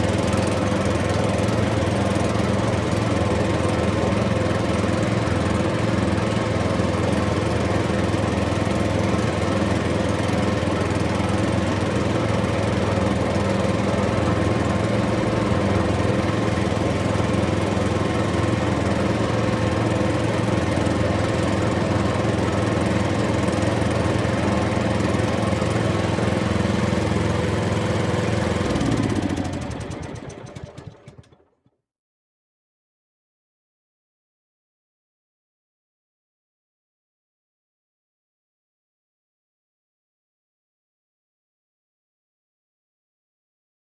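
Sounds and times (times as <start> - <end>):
engine droning: 0.0 - 31.6.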